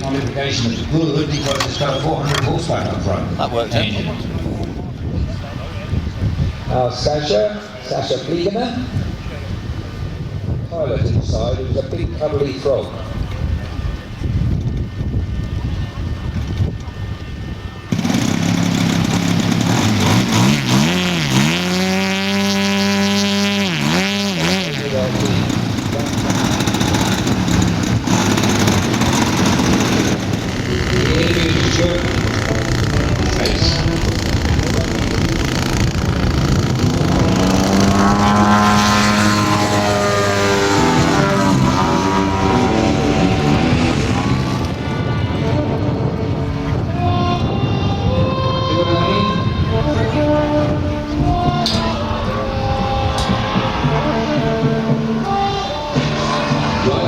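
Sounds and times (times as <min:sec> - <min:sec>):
model airplane engine revving: 0:13.6 - 0:57.0.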